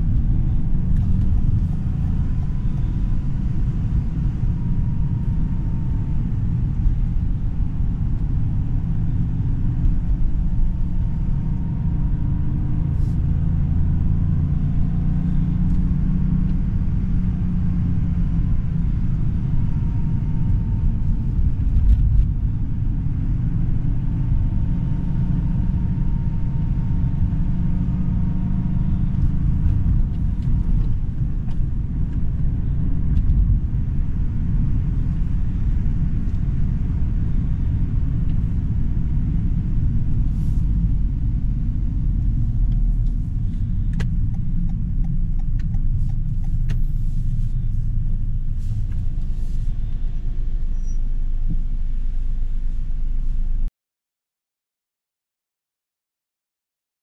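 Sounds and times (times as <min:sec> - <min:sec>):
car engine at low revs: 0:00.0 - 0:53.7
road rumble: 0:00.0 - 0:53.7.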